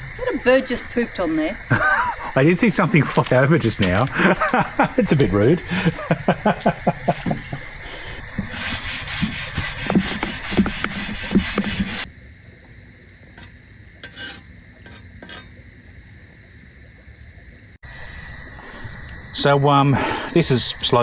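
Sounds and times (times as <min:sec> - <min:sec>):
food sizzling: 0:00.0 - 0:17.8
utensil scraping on a fire plate: 0:08.5 - 0:12.1, 0:14.0 - 0:15.6.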